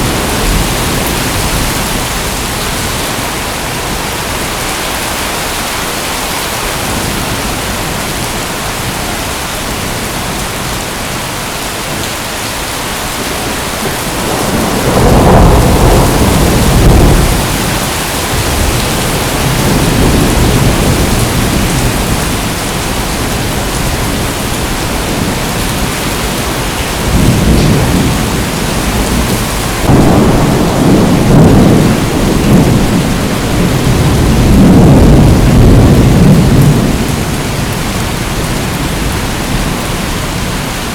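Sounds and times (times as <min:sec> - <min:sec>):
rolling thunder: 0:00.0 - 0:04.6, 0:12.8 - 0:40.7
heavy rain hiss: 0:00.0 - 0:40.9.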